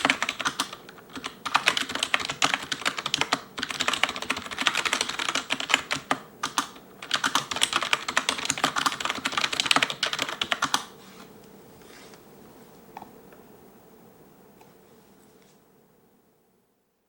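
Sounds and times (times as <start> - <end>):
keyboard keys clacking: 0.0 - 10.9.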